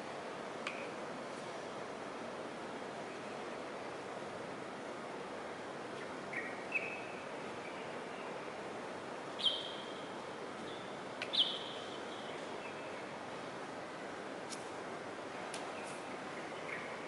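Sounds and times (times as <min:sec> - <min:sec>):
steady background hiss: 0:00.0 - 0:17.0
birds calling: 0:09.4 - 0:09.9.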